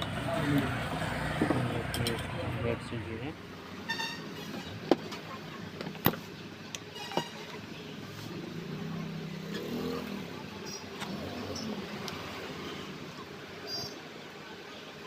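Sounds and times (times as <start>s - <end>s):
fan parts clicking and knocking: 0.0s - 2.4s
street traffic hum: 0.0s - 15.0s
vehicle horn toot: 3.9s - 4.6s.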